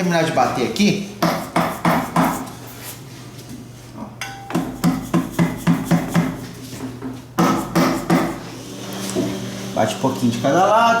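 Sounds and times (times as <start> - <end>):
hammer tapping on metal: 1.2 - 2.4, 4.2 - 6.4.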